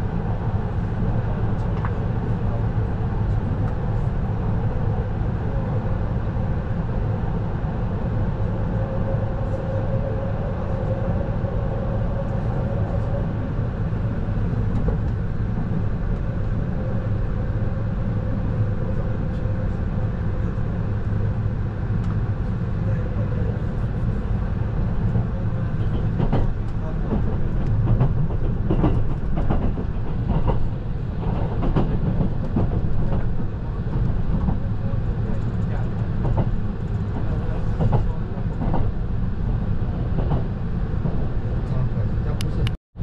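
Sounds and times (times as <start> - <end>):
train wheels rumbling on rails: 0.0 - 42.8.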